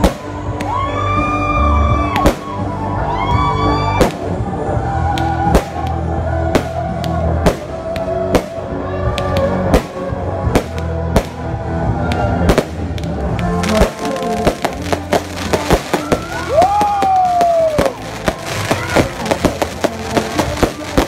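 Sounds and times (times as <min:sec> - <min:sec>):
fireworks banging: 0:00.0 - 0:00.5, 0:12.5 - 0:21.0
firework crackles: 0:00.0 - 0:00.8, 0:12.5 - 0:21.0
music playing: 0:00.0 - 0:21.0.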